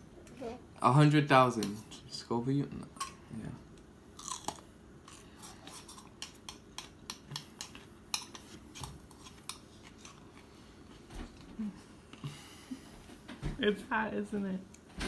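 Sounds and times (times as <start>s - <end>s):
chewing hot pepper crunching: 4.1s - 7.8s.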